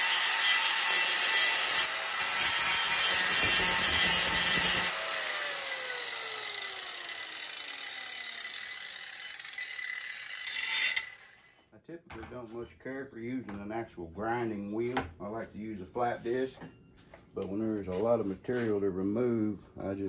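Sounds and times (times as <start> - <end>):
grinder whine coasting down: 0.0 - 11.6
angle grinder grinding metal blade: 0.0 - 11.7.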